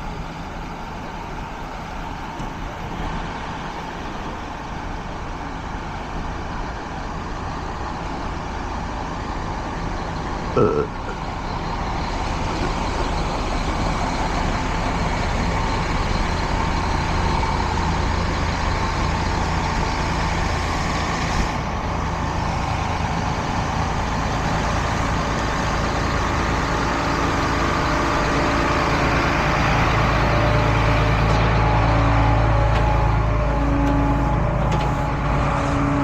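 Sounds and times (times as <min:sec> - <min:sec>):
truck engine running: 0:00.0 - 0:36.0.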